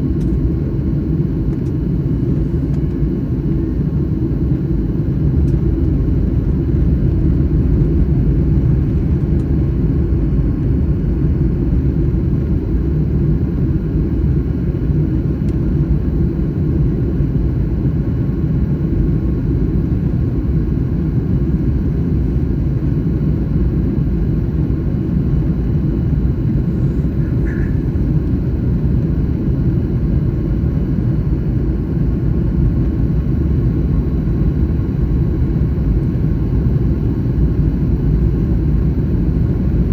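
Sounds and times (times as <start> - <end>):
jet airliner rumble: 0.0 - 39.9.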